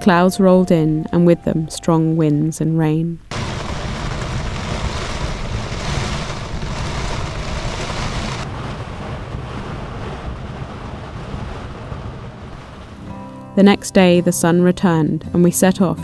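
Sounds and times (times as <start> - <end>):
rain falling: 3.2 - 14.6
strong wind buffeting microphone: 3.3 - 13.1.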